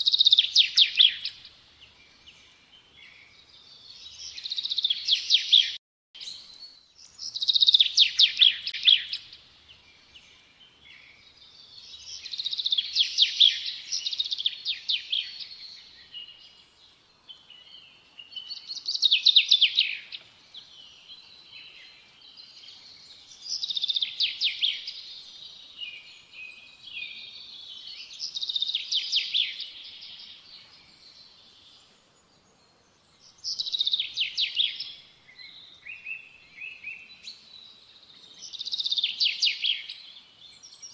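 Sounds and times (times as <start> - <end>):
songbird trilling: 0.0 - 1.4, 7.0 - 9.4, 11.9 - 16.5, 23.3 - 25.2.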